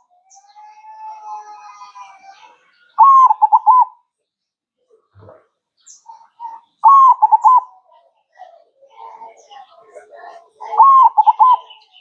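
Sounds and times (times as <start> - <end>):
dove cooing: 3.0 - 3.9, 6.2 - 7.7, 10.0 - 11.8.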